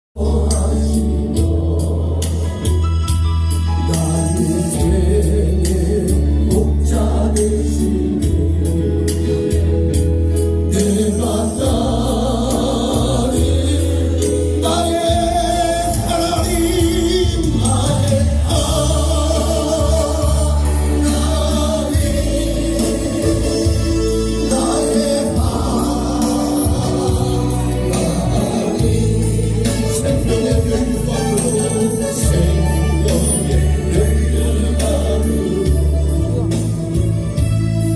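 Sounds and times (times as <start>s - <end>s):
gospel music with heavy bass: 0.2s - 37.9s
voices singing: 10.7s - 36.8s.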